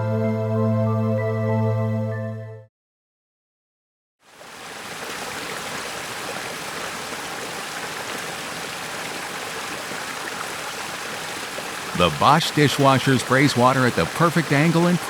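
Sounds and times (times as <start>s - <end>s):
music: 0.0s - 2.7s
dishwasher water jets spraying: 12.0s - 15.0s.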